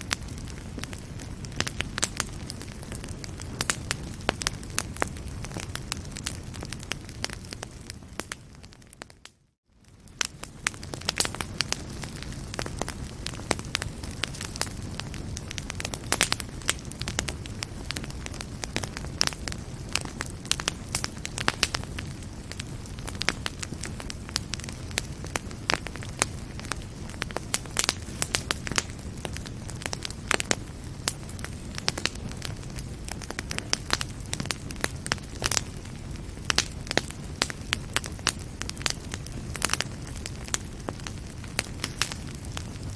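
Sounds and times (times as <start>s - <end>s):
wood fire crackling and popping: 0.0s - 42.9s.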